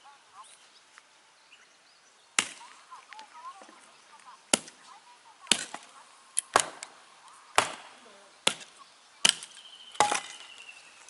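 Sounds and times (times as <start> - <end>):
axe chopping firewood: 2.4 - 2.7, 4.5 - 4.8, 5.5 - 10.7.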